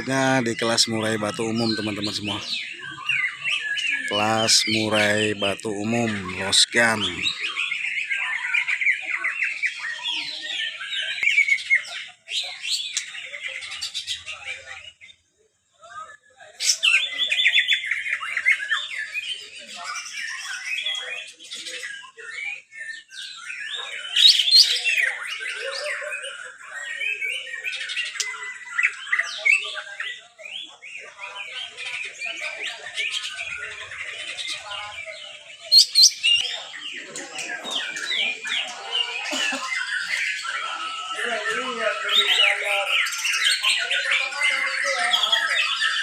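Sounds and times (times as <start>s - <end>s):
birds singing in chorus: 0.0s - 46.0s.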